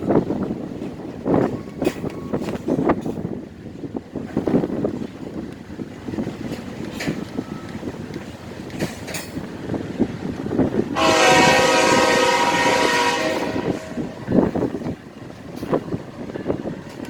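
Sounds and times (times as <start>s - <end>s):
train wheels clattering on rails: 0.0s - 17.0s
locomotive air horn: 11.0s - 14.5s.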